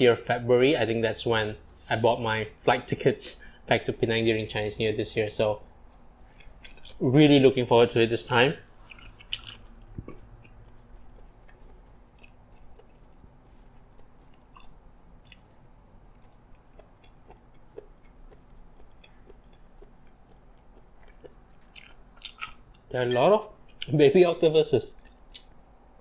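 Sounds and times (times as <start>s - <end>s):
person chewing food: 3.4s - 24.0s, 24.9s - 26.0s
small mouth clicks: 5.6s - 7.0s, 8.7s - 22.9s.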